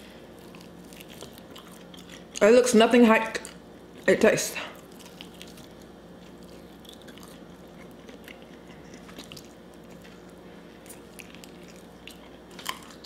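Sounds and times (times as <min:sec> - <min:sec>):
chewing mouth clicks and smacks: 0:00.4 - 0:02.4, 0:04.8 - 0:13.0.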